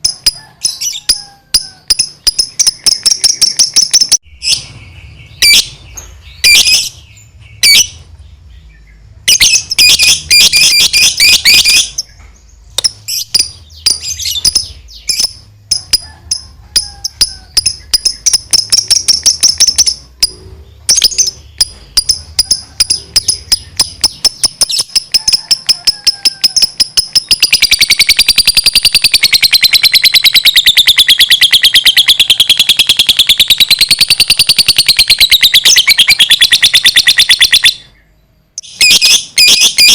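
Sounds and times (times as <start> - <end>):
bird chattering trill: 0.0 - 8.0, 9.2 - 39.9
bird chirping: 0.0 - 39.9.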